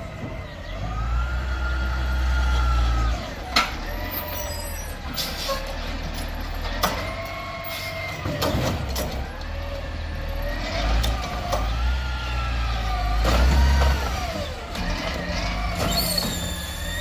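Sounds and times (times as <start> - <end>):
truck engine rumble: 0.0 - 17.0
hydraulic whine: 12.8 - 17.0.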